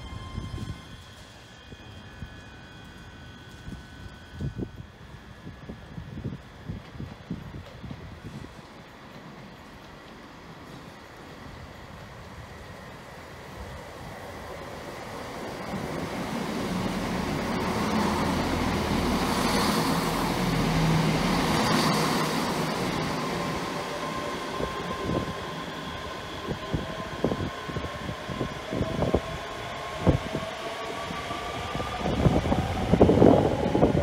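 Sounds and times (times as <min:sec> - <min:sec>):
thin whining tones: 0:00.0 - 0:05.9
passenger train passing: 0:00.0 - 0:34.0.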